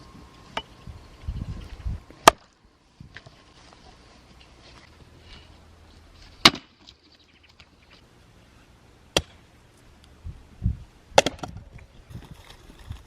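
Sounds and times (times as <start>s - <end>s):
sharp chopping strikes: 2.2s - 2.5s.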